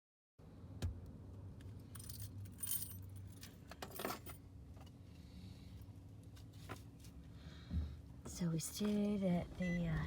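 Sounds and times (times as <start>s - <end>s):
low steady hum: 0.4s - 10.0s
light metallic jingling: 1.9s - 4.4s.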